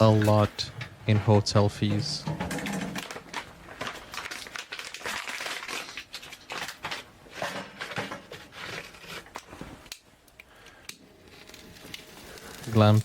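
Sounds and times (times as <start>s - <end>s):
crinkling and crackling: 0.0s - 13.0s.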